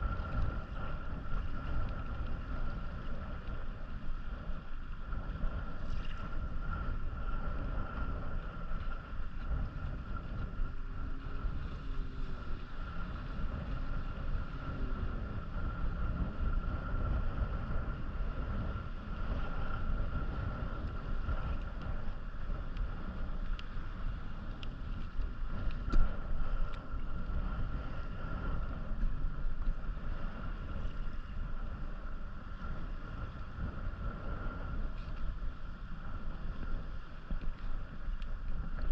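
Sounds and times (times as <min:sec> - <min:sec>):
wind rumbling on microphone: 0:00.0 - 0:38.9.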